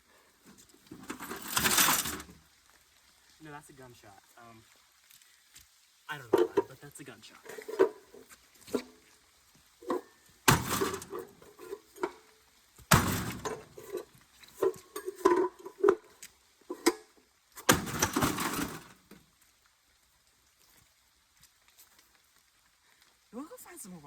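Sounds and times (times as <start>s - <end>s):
rattling debris: 0.4s - 2.4s, 6.1s - 9.1s, 9.8s - 19.3s
metal and glass crashing: 1.0s - 2.4s, 9.8s - 12.3s, 12.9s - 16.1s, 17.6s - 19.1s.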